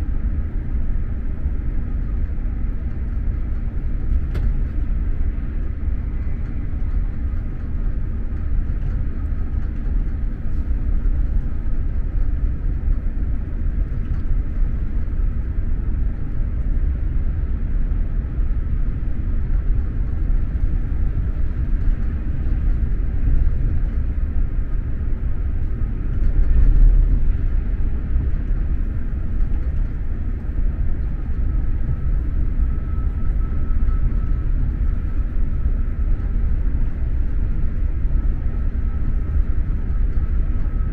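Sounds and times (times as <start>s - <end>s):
train wheels rumbling: 19.1s - 40.9s.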